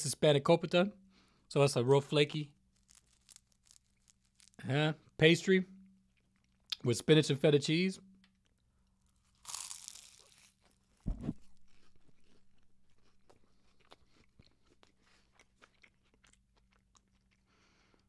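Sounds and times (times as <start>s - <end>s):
close-up chewing with crackles: 2.7s - 4.6s, 8.4s - 18.0s
crunching bite into pastry: 2.7s - 4.6s, 9.0s - 17.5s
low thump: 11.1s - 11.4s.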